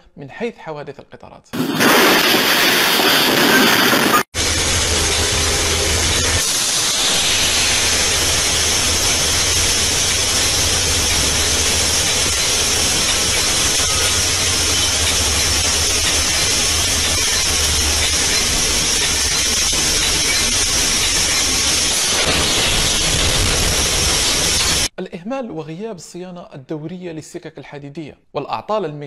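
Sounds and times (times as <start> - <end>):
low hum: 1.6 - 24.9
train rushing noise: 1.6 - 24.9
wind hiss: 1.6 - 24.9.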